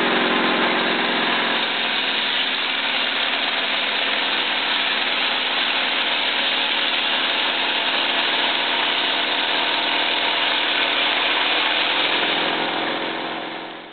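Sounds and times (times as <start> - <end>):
engine hum: 0.0 - 5.8
circular saw blade cutting wood: 0.0 - 13.9.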